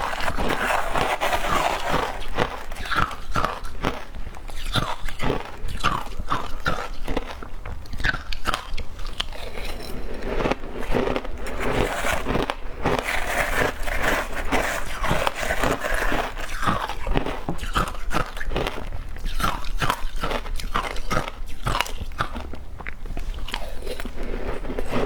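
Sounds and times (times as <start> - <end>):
ice crunching while chewed: 0.0 - 25.0.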